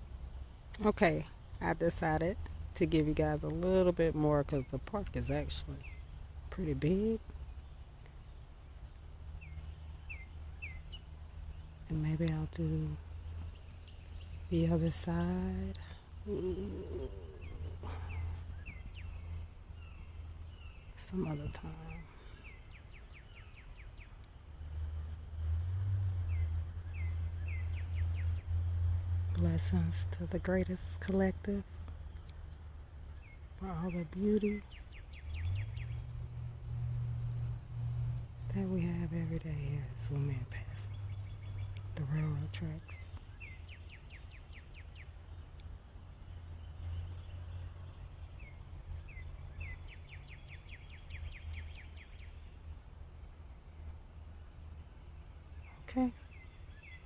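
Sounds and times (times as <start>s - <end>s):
low steady rumble: 0.0s - 57.0s
bird chirping: 0.5s - 52.9s, 55.0s - 57.0s
songbird trilling: 0.7s - 8.3s, 9.3s - 24.2s, 26.2s - 36.4s.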